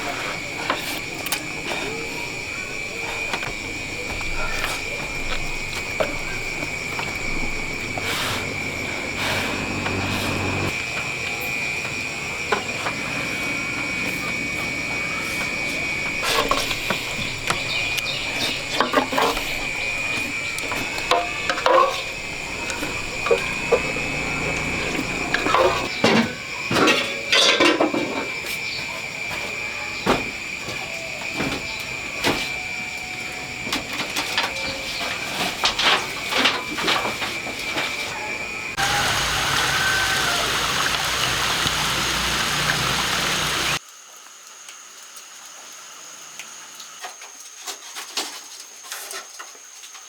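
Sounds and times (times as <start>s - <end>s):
insects buzzing: 0.0s - 26.8s, 28.0s - 43.9s.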